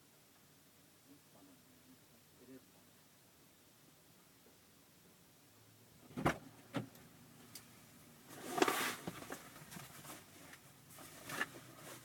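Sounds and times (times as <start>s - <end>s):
rustling scrape: 8.2s - 12.0s.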